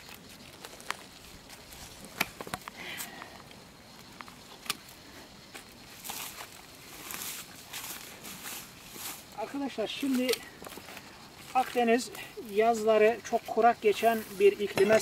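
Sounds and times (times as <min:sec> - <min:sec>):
twigs snapping: 0:00.0 - 0:03.4
leaves and branches rustling: 0:00.0 - 0:15.0.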